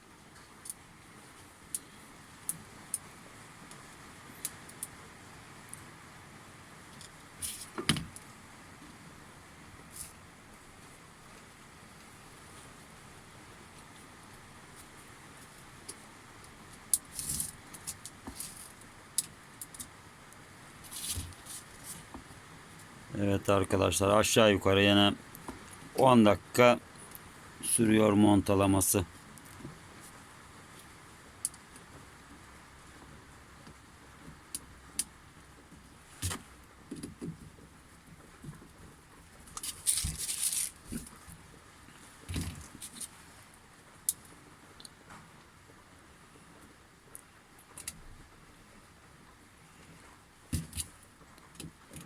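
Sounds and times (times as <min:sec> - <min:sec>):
small parts rustling: 0:07.0 - 0:07.9, 0:16.7 - 0:19.9, 0:20.8 - 0:22.2, 0:39.4 - 0:41.3.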